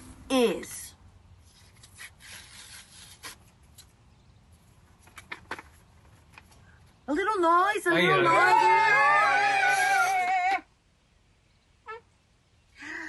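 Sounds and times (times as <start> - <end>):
rustling and scraping handling noise: 1.4 - 6.9.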